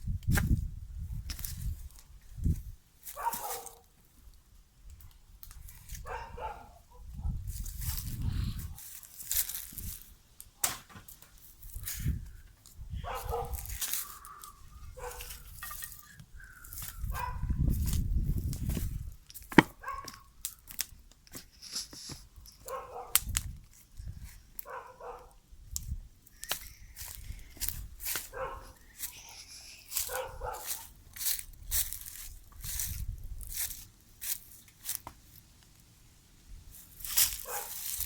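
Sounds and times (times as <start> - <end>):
dog barking: 3.1 - 3.9, 6.0 - 7.4, 13.0 - 15.4, 17.1 - 17.6, 19.8 - 20.3, 22.6 - 23.2, 24.6 - 25.4, 28.2 - 28.8, 30.0 - 30.9, 37.4 - 37.8.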